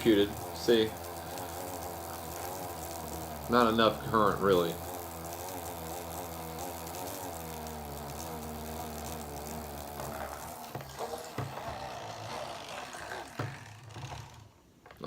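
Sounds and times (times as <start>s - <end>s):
small motor whining underwater: 5.6s - 14.6s.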